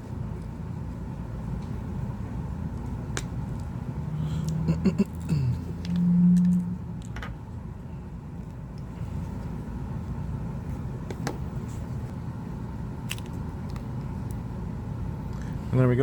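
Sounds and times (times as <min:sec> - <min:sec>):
low background rumble: 0:00.0 - 0:16.0
short low hum: 0:03.6 - 0:10.6.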